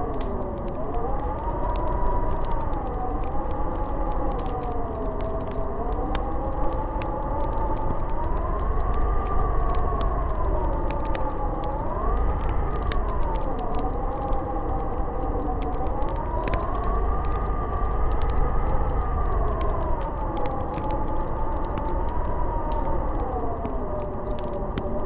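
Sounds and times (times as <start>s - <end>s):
wind howling: 0.0s - 25.0s
deep steady rumble: 7.6s - 23.5s.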